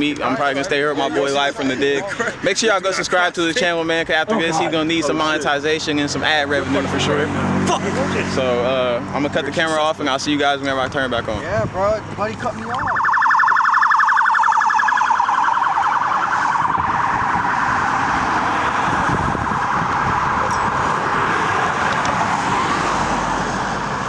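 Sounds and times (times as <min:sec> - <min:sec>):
emergency siren warbling: 0:12.8 - 0:24.0.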